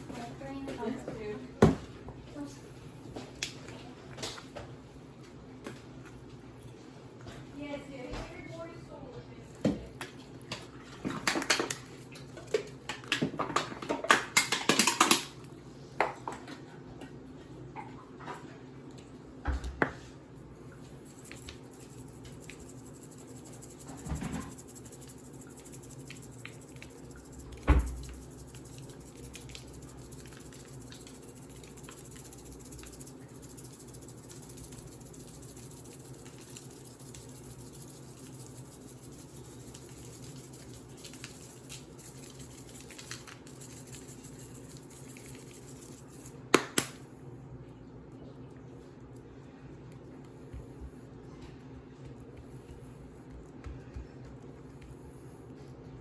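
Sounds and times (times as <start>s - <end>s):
steady low hum: 18.9s - 56.0s.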